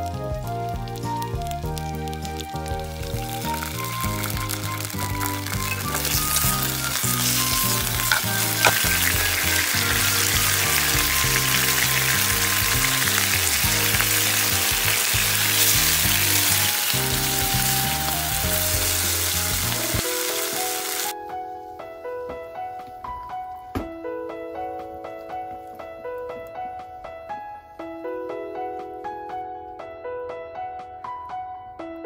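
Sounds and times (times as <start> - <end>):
pork sizzling in frying pan: 0.0 - 21.2
sauce bubbling: 0.5 - 21.1.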